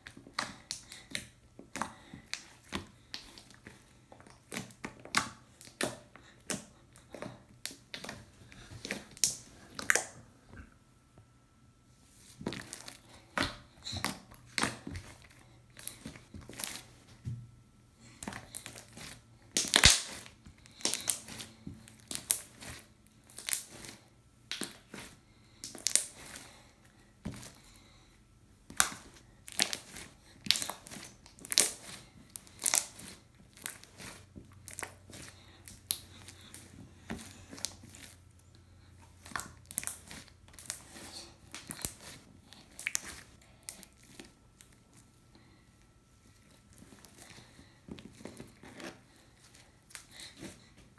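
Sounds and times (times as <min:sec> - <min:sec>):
slime popping and crackling: 0:19.5 - 0:21.4, 0:22.0 - 0:23.9, 0:25.6 - 0:26.2, 0:28.7 - 0:36.5, 0:39.2 - 0:40.8, 0:42.7 - 0:43.8.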